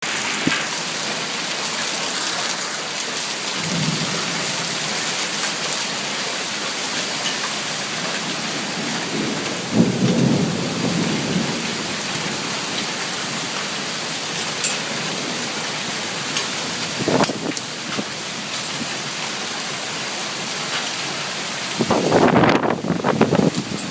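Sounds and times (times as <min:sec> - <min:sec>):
heavy rain pouring: 0:00.0 - 0:23.9
thunder rumbling: 0:03.6 - 0:04.9, 0:08.3 - 0:12.9.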